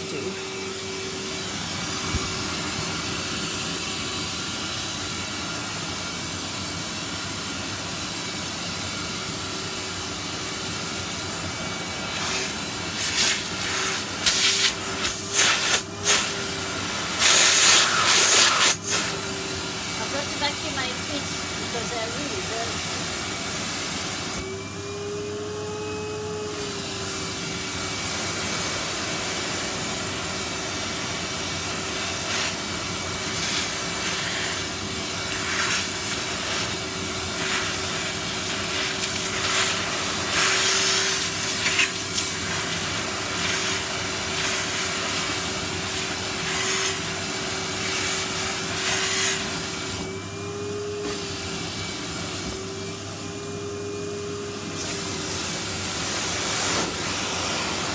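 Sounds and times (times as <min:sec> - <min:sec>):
vacuum cleaner motor whine: 0:00.0 - 0:57.9
vacuum nozzle rasping on skin: 0:12.2 - 0:16.4.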